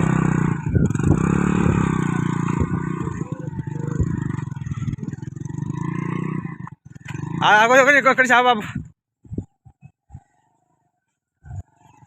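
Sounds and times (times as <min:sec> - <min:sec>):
tractor engine running: 0:00.0 - 0:07.4.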